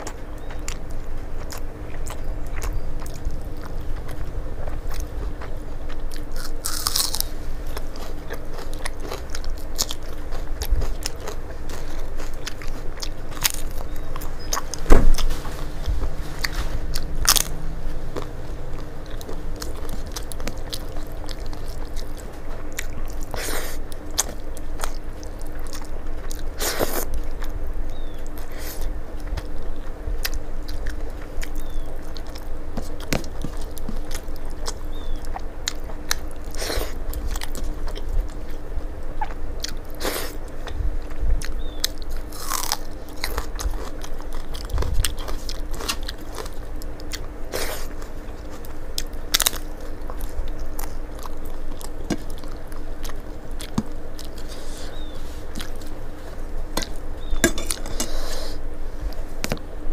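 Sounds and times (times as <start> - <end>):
faint steady hum: 0.0 - 59.9
person chewing food: 0.0 - 59.9
sharp crunches: 1.4 - 25.0, 41.4 - 46.6.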